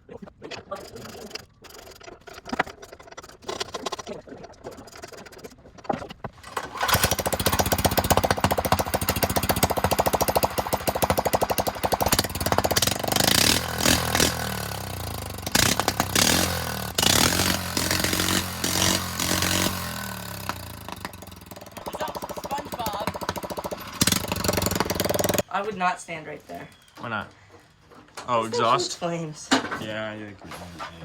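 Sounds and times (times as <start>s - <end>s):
small tractor engine revving: 6.4s - 25.5s.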